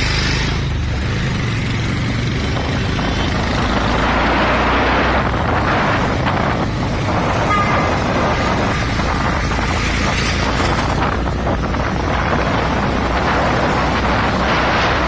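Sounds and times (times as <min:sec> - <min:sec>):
motorcycle engine humming: 0:00.0 - 0:15.0
rushing noise: 0:03.4 - 0:15.0.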